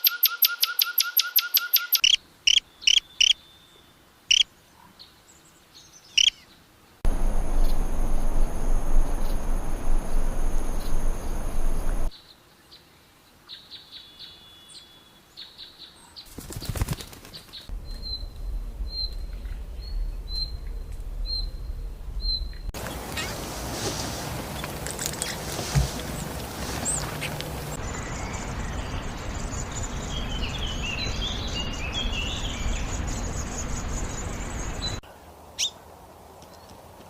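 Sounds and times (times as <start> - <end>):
bird chirps: 0.0 - 4.5, 5.8 - 6.5, 17.5 - 23.4, 26.8 - 35.0
loud rushing noise: 7.1 - 12.1
steady high whine: 7.1 - 12.1.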